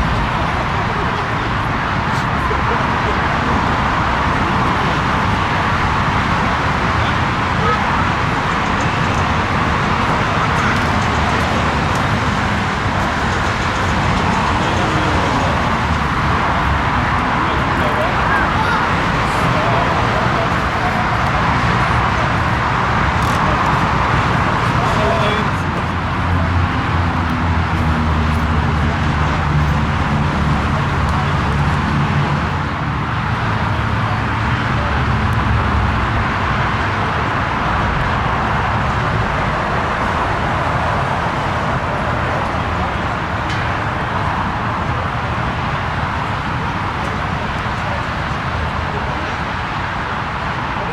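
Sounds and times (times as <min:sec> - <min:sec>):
jet engines roaring: 0:00.0 - 0:50.9.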